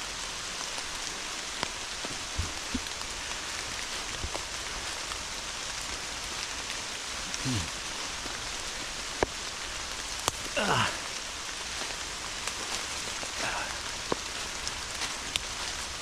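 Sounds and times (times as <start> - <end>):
heavy rain falling: 0.0 - 16.0
large raindrops ticking: 0.0 - 16.0
short falling voice-like sound: 7.4 - 7.7.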